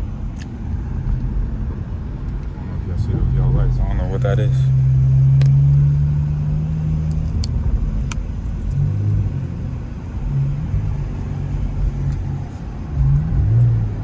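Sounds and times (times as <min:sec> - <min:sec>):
car exhaust drone: 0:00.0 - 0:14.0.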